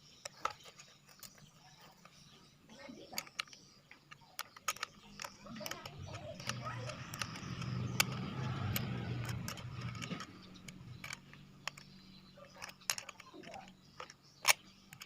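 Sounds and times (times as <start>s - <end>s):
clicks and rattles of small parts: 0.0s - 15.0s
low engine hum: 5.0s - 15.0s.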